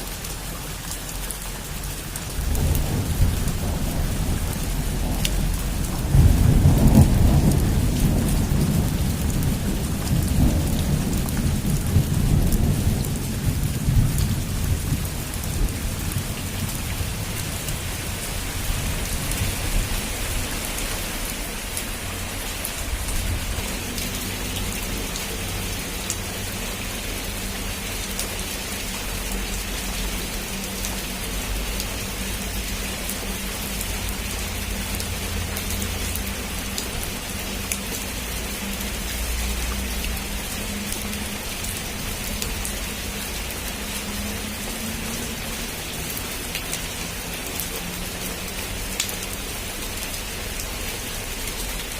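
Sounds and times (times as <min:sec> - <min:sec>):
heavy rain on a roof: 0:00.0 - 0:51.9
thunder rumbling: 0:02.2 - 0:20.8.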